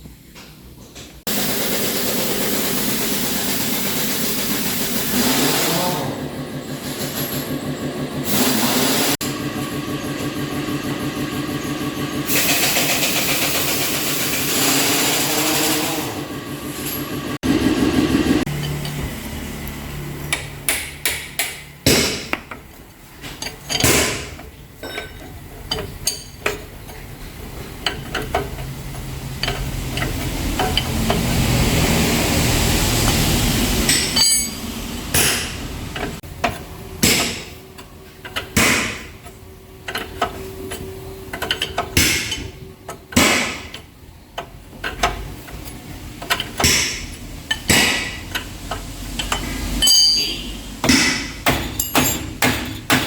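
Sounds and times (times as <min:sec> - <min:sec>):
hammer striking metal: 0:20.3 - 0:22.5, 0:33.8 - 0:35.6, 0:49.3 - 0:53.0.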